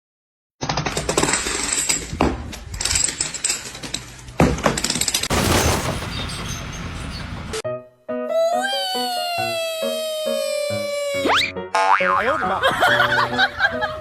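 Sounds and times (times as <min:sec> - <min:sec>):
hard objects clattering and rattling: 0:00.8 - 0:07.3
heavy crashes: 0:05.2 - 0:07.6.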